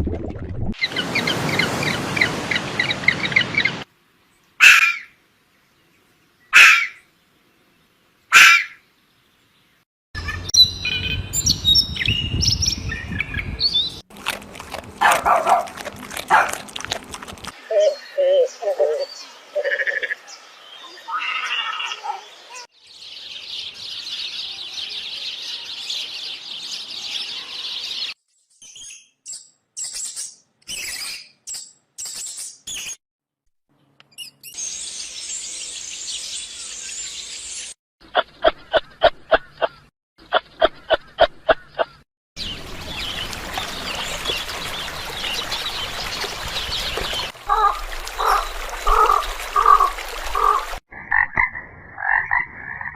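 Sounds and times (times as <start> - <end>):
animal calls: 6.6 - 7.0
high bird chirping: 10.2 - 14.0.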